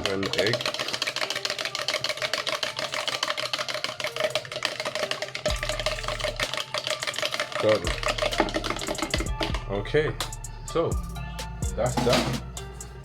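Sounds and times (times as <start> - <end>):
utensil clicking against bowl: 0.0 - 9.6
eggs beaten in a bowl: 0.0 - 12.8.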